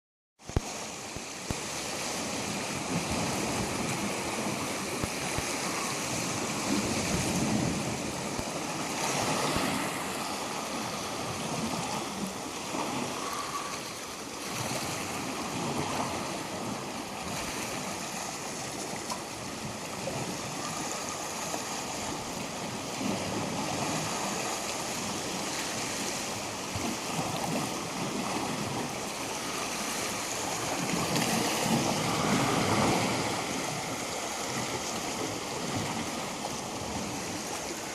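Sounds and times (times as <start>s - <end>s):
waves washing on shore: 0.4s - 37.9s.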